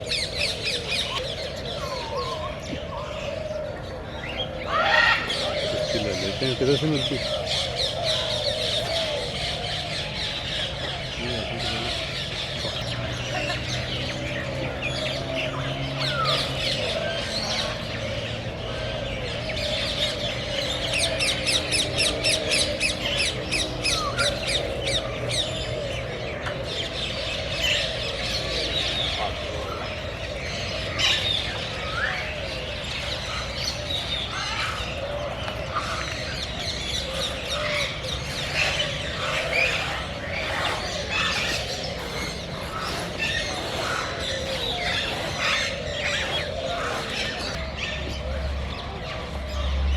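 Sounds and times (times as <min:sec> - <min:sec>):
birds chirping and squawking: 0:00.0 - 0:49.9
fast chattering bird calls: 0:35.8 - 0:47.6.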